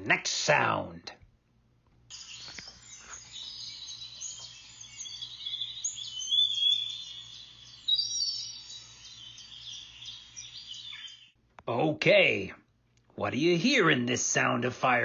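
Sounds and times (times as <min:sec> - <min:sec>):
birds chirping and singing: 0:02.1 - 0:11.4.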